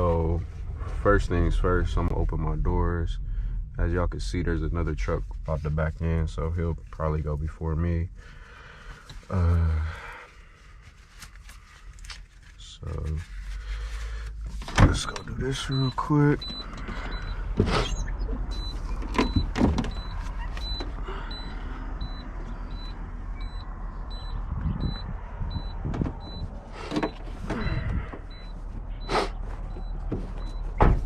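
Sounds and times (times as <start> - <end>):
truck engine idling: 15.3 - 31.0
high-pitched warning chime beeping: 15.5 - 26.5
knocks and thumps of truck doors: 19.0 - 21.0, 25.8 - 28.3, 29.6 - 31.0.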